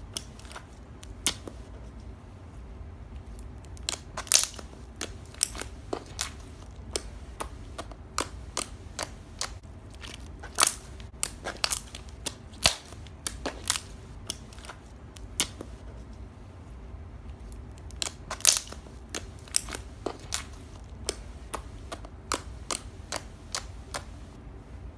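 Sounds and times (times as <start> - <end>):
slime popping: 17.8 - 24.2.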